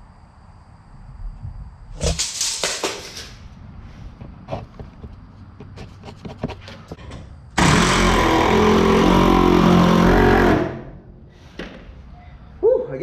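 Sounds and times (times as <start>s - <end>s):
wood and parts being handled: 4.0s - 7.3s
power drill driving screw into wood: 7.6s - 10.8s.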